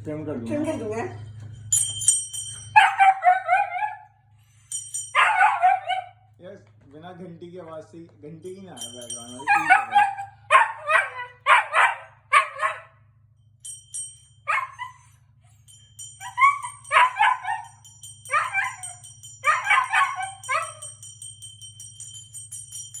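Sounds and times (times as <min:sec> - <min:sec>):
bell ringing: 0:00.5 - 0:03.8, 0:04.5 - 0:06.0, 0:08.3 - 0:11.5, 0:13.6 - 0:23.0
dog howling: 0:02.8 - 0:04.0, 0:05.2 - 0:06.1, 0:09.3 - 0:12.9, 0:14.5 - 0:15.0, 0:16.2 - 0:17.7, 0:18.3 - 0:20.8.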